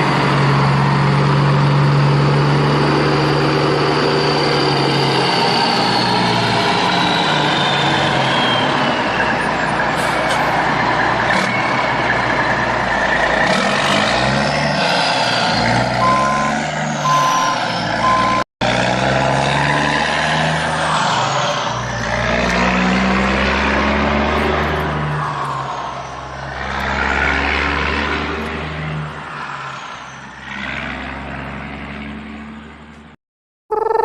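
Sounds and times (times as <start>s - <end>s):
heavy truck engine running: 0.0s - 19.4s
short reversing beeps: 16.0s - 18.4s.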